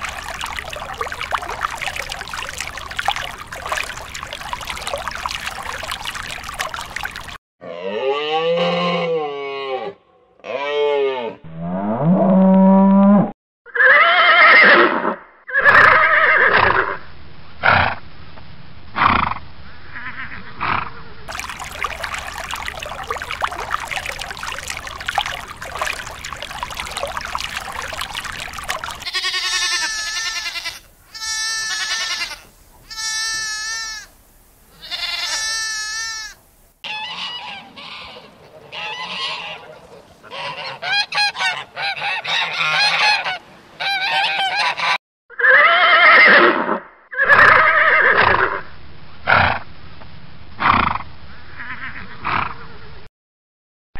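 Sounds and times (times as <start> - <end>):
horse calling: 13.7 - 17.0, 21.4 - 43.0, 45.3 - 48.6
lambs bleating: 29.0 - 34.1, 34.7 - 36.4
geese honking: 34.8 - 45.0.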